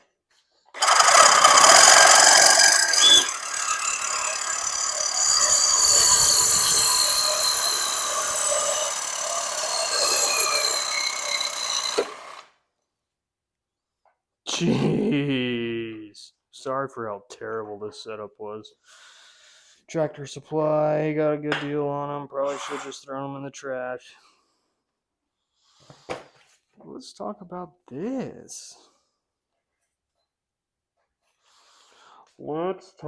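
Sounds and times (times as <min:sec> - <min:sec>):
power saw cutting steel: 0:00.8 - 0:12.5.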